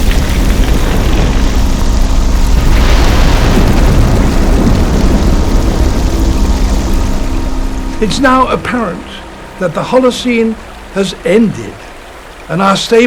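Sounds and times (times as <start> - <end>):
deep rumble: 0.0 - 12.5
low drone: 0.0 - 12.6.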